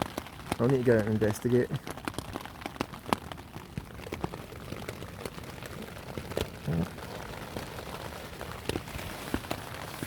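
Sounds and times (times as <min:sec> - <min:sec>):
rain drumming on a tent: 0:00.0 - 0:10.0
low hum or grunt: 0:06.6 - 0:07.0.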